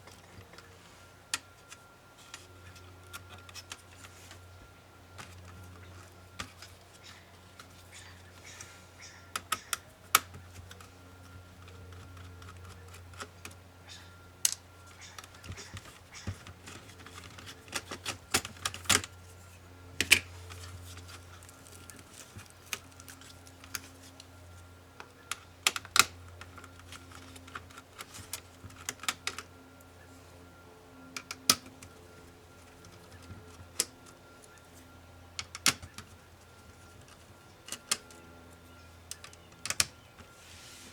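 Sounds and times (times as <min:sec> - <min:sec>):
low steady hum: 0:00.0 - 0:40.9
clicks and taps of tools and plastic: 0:05.2 - 0:07.8, 0:09.3 - 0:13.6, 0:14.4 - 0:19.2, 0:20.0 - 0:29.5, 0:31.1 - 0:32.0, 0:35.4 - 0:38.2, 0:39.1 - 0:40.3.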